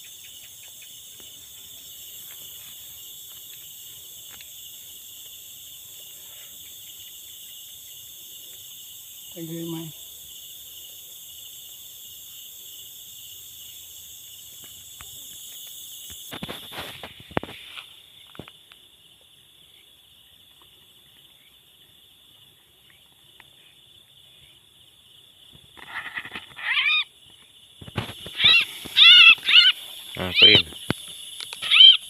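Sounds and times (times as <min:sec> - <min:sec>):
insects trilling: 0:00.0 - 0:32.0
harsh bird distress call: 0:28.4 - 0:30.7, 0:31.6 - 0:32.0.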